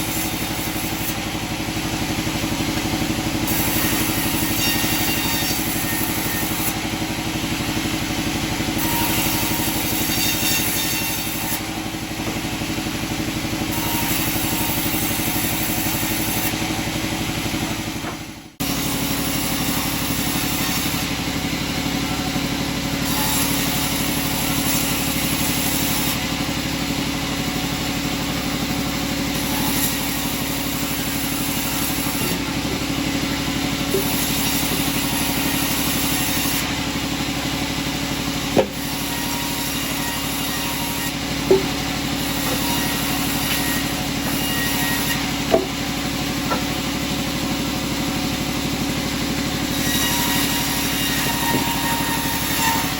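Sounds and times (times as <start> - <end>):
sawmill machinery humming: 0.0 - 52.9
sharp knocks: 38.6 - 39.0, 41.5 - 42.7, 45.5 - 45.9.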